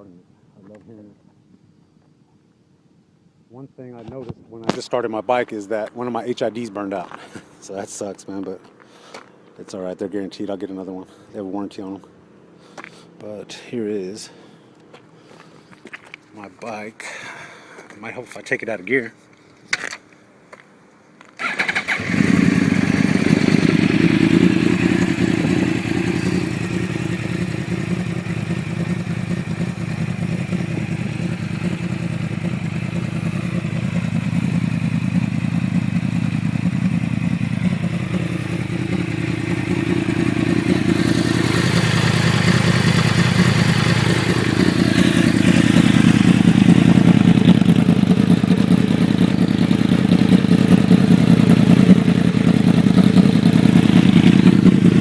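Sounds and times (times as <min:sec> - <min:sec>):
motorcycle engine idling: 0:21.4 - 0:55.0.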